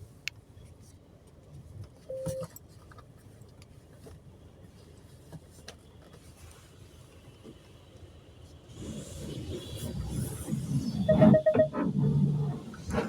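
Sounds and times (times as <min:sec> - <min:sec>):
short steady beep: 0:02.1 - 0:02.4, 0:11.1 - 0:11.8.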